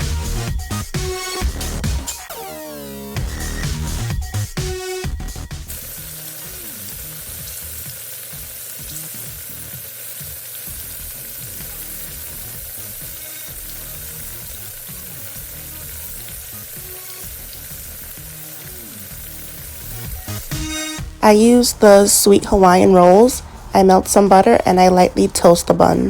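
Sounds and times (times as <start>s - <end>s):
chicken sizzling in hot oil: 5.3s - 21.2s.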